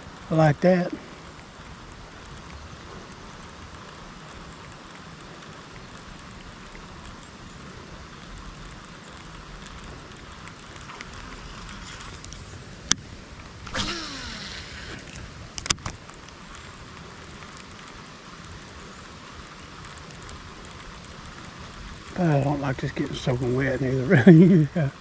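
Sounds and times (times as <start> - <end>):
falling rain hiss: 0.0 - 25.0
sharp click: 13.6 - 16.0.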